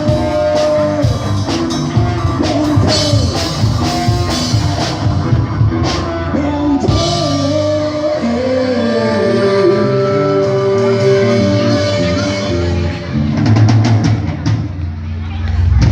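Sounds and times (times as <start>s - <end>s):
drum kit beat: 0.0s - 8.4s, 10.3s - 14.9s
guitar: 0.0s - 15.9s
person singing long notes: 5.7s - 13.1s.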